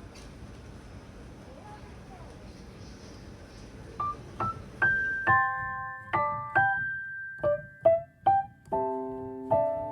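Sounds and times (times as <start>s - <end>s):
slow piano melody: 4.0s - 9.9s.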